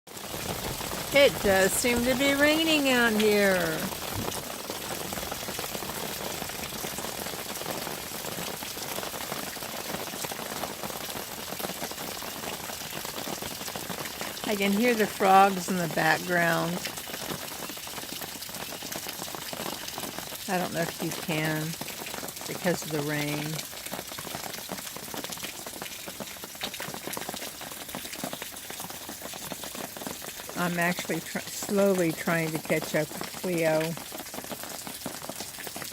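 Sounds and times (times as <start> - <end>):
raindrops pattering on surfaces: 0.1 - 35.9
steady rain falling: 0.1 - 35.9.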